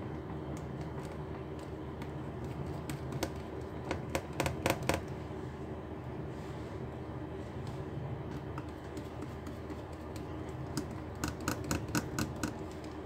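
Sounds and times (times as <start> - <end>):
low background hum: 0.0 - 13.0
laptop parts clicking and tapping: 0.6 - 5.1, 8.3 - 13.0.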